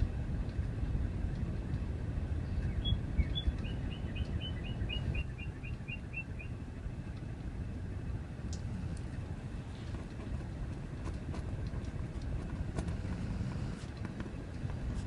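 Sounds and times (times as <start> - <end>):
steady low rumble: 0.0 - 15.0
songbird chirping and trilling: 2.4 - 6.6.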